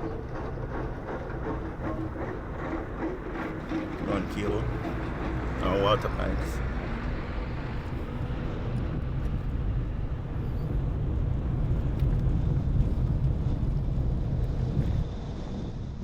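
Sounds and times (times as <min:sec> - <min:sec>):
car driving on road: 0:02.8 - 0:15.1.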